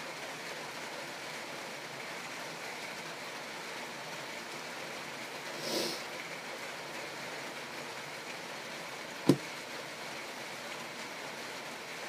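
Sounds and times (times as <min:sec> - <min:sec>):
background hiss: 0:03.0 - 0:12.0
sharp knock: 0:09.3 - 0:09.5.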